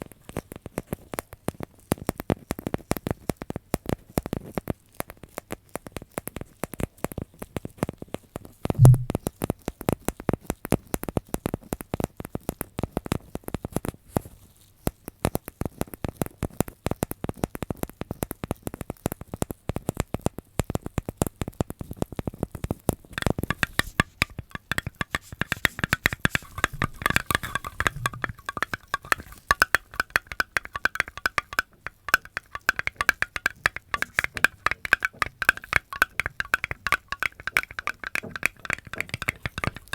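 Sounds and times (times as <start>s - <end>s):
heavy thump: 8.8s - 9.2s
dense clicking and crackling: 23.2s - 39.9s.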